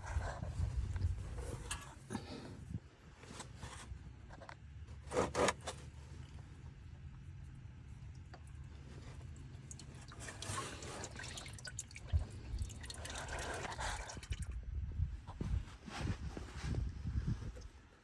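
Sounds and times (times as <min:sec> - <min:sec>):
motor oil pouring: 0:07.9 - 0:14.9
drips and small knocks: 0:08.0 - 0:14.7.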